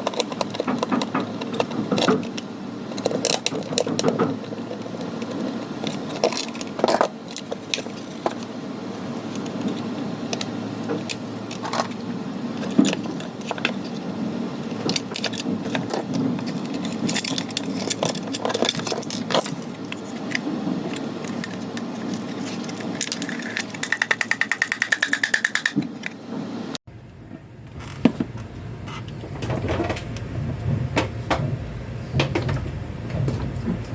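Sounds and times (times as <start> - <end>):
plastic parts clicking and rattling: 0.0 - 8.5, 9.3 - 14.0, 14.7 - 26.2
steady low hum: 0.0 - 33.9.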